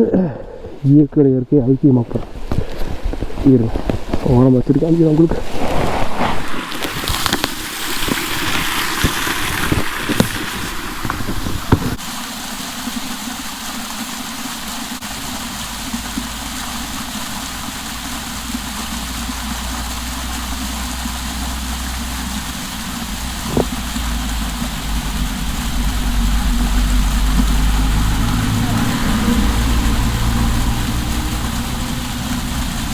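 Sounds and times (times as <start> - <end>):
water splashing and running: 2.0 - 32.9
engine humming: 15.0 - 32.9.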